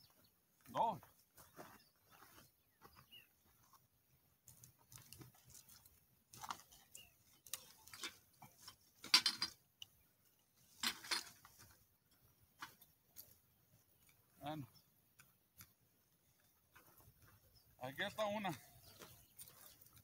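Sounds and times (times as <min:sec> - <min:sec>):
dry brush rustling and crackling: 0:04.4 - 0:09.2, 0:10.5 - 0:14.5, 0:15.6 - 0:20.0.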